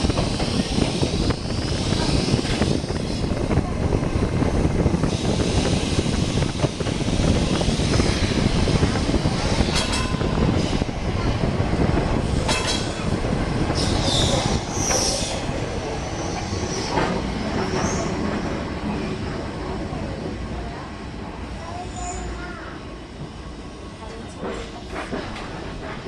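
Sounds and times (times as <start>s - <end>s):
electric tram rumbling and rattling: 0.0s - 26.0s
tram wheels squealing: 12.3s - 19.2s.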